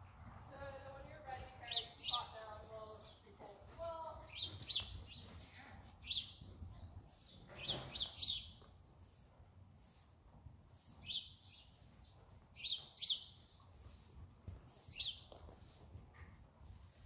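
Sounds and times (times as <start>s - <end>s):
small birds chirping: 1.5s - 9.3s, 9.9s - 14.2s, 14.8s - 15.6s.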